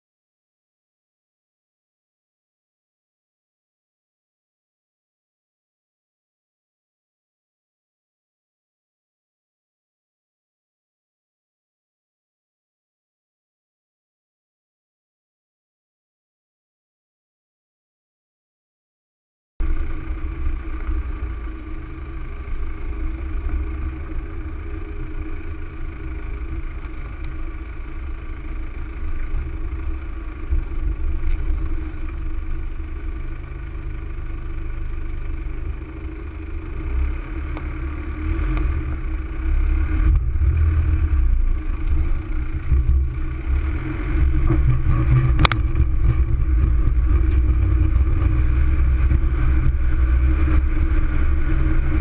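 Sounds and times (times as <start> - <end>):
vehicle engine running under load: 19.6 - 52.0.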